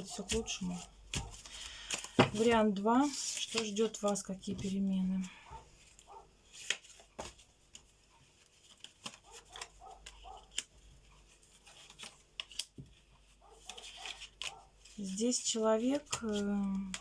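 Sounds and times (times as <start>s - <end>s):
cards clicking and tapping: 0.1s - 4.7s, 6.6s - 8.0s, 8.6s - 15.0s, 15.9s - 17.0s.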